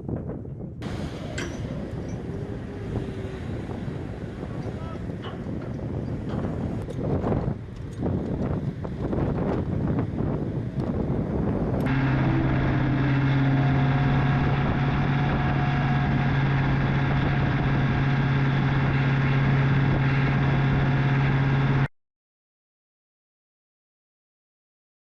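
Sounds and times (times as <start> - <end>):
wind: 0.0 - 21.9
heavy engine running: 0.8 - 21.9.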